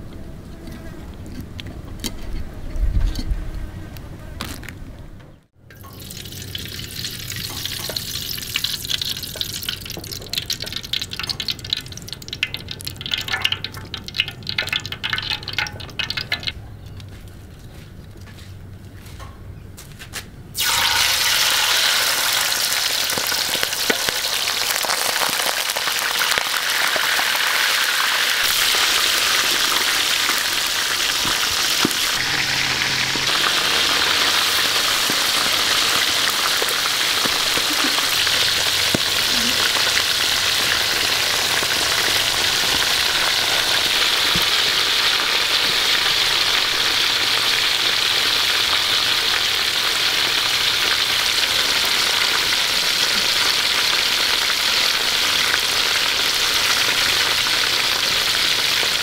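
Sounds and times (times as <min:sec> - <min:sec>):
shrimp deep-frying in hot oil: 0:05.6 - 0:17.1, 0:20.6 - 0:59.0.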